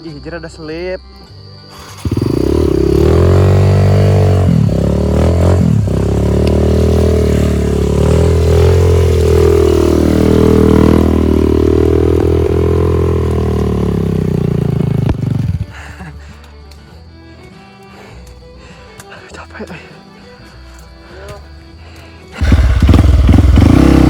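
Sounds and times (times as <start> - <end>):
motorcycle engine revving hard: 1.8 - 15.8, 22.4 - 24.0.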